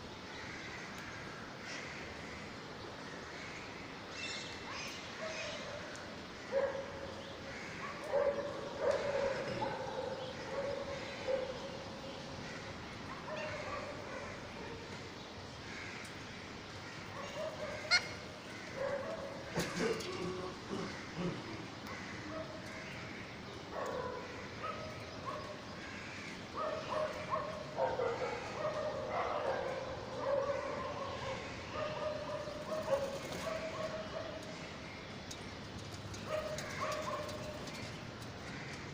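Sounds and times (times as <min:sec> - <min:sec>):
parrot chicks begging calls: 0:17.2 - 0:18.8.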